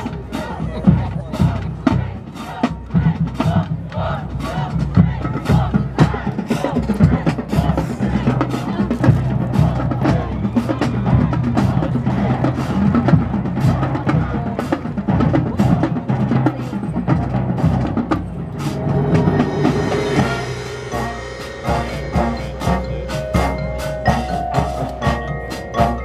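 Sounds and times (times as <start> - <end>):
bass drum: 0.0 - 14.4, 15.0 - 26.0
marching band drums: 0.0 - 26.0
held notes: 18.0 - 26.0.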